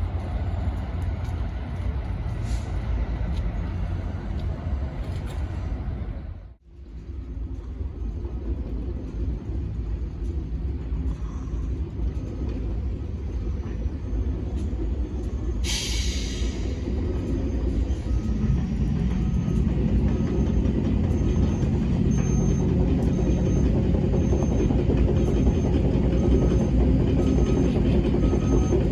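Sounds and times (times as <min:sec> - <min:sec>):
train rumble: 0:00.0 - 0:28.9
sharp hiss of air: 0:15.6 - 0:16.8.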